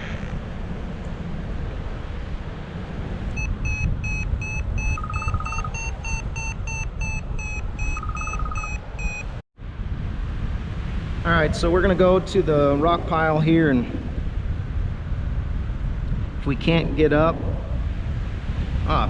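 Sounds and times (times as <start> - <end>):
wind buffeting microphone: 0.0 - 19.0
variometer beeping: 3.3 - 9.4
low rapid trill: 3.4 - 9.2.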